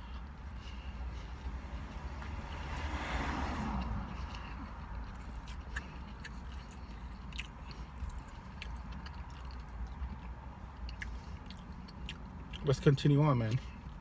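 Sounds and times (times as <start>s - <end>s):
person chewing: 0.0s - 14.0s.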